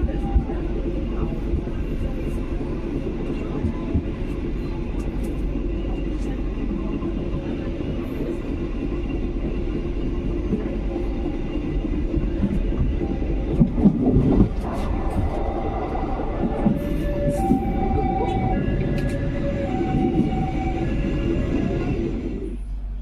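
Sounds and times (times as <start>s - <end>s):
train wheels rumbling on rail: 0.0s - 23.0s
clicks of train wheels: 16.6s - 19.3s.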